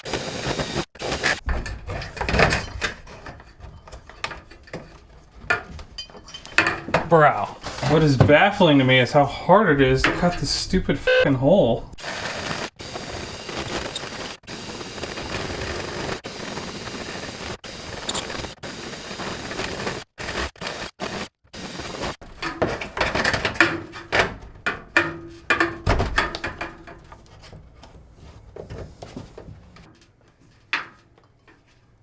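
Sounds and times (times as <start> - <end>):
power tool whining through wood: 0.0 - 23.3
scraping and knocking on wood: 0.2 - 11.2, 22.2 - 31.8.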